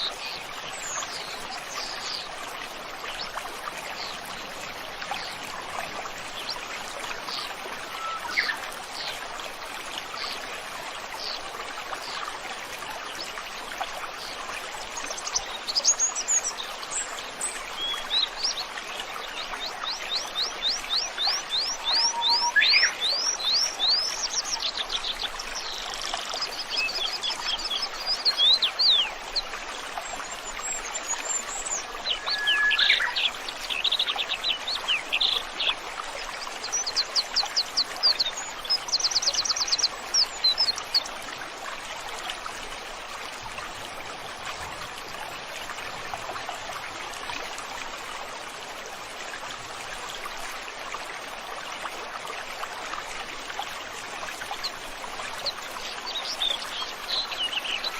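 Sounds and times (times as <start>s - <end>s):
stream running: 0.0s - 57.9s
songbirds singing: 14.8s - 41.1s, 54.5s - 57.9s.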